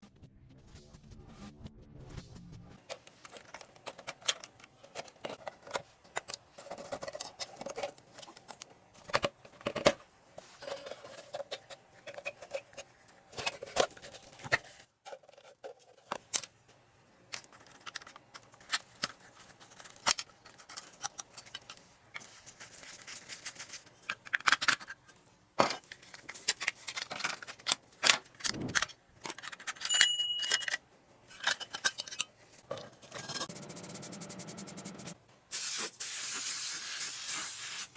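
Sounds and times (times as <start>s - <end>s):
metal parts clinking and scraping: 25.8s - 33.5s.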